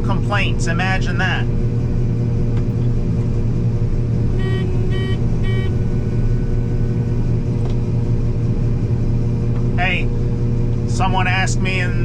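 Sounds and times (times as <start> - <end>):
combine harvester engine drone: 0.0 - 12.0
short electronic beeps: 4.4 - 5.9.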